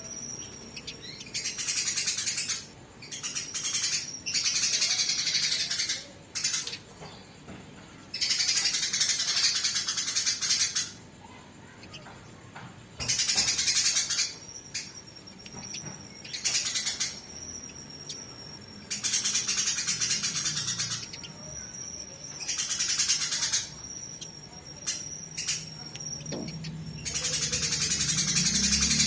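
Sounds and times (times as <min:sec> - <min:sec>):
thin steady high tone: 0:00.0 - 0:06.8, 0:08.2 - 0:29.0
sparrows chattering harshly: 0:00.0 - 0:29.0
ticks: 0:11.8 - 0:29.0.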